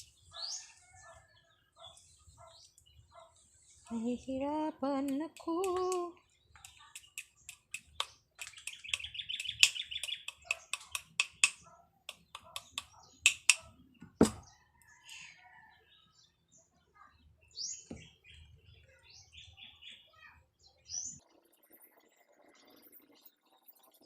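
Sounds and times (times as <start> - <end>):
bird chirping and trilling: 0.0 - 4.4, 5.6 - 15.3, 16.9 - 24.0
sharp clicks and taps: 5.0 - 14.4.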